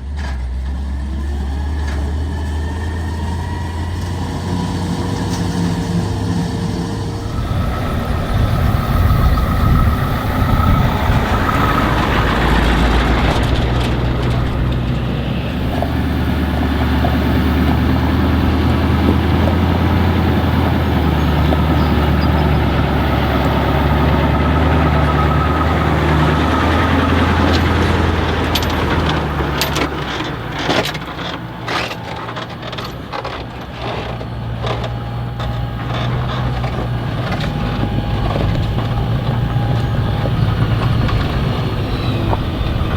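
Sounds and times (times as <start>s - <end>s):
heavy engine running: 0.0s - 42.9s
sharp knocks and clatters: 24.4s - 41.4s.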